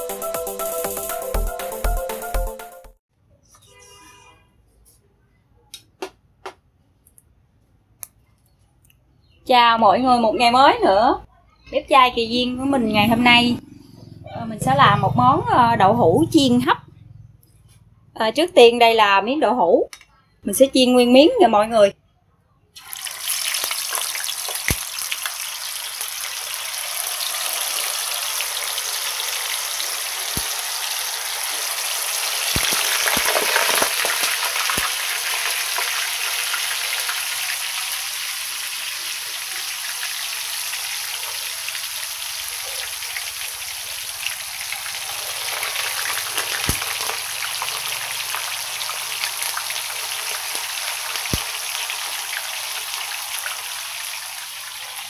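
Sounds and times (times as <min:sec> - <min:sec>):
tofu deep-frying in hot oil: 0:22.8 - 0:55.0.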